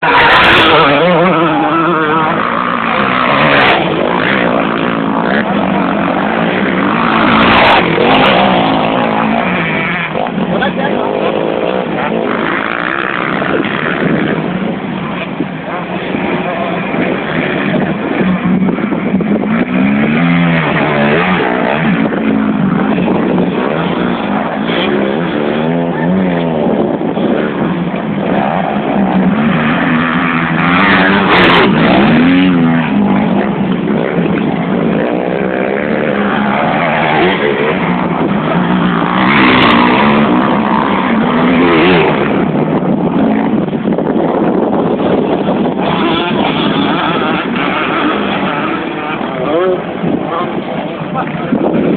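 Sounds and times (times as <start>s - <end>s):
dirt bike engines revving: 0.0s - 51.9s.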